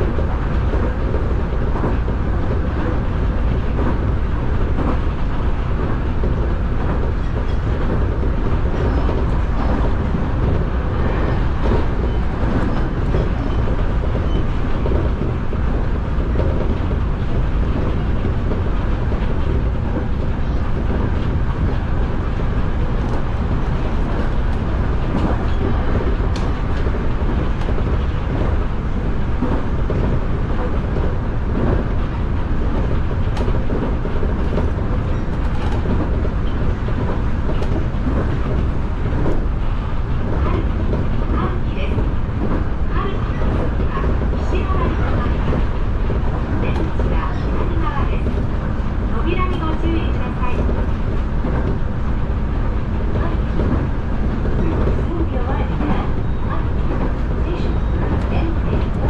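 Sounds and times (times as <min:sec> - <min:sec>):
train interior rumble: 0:00.0 - 0:59.0.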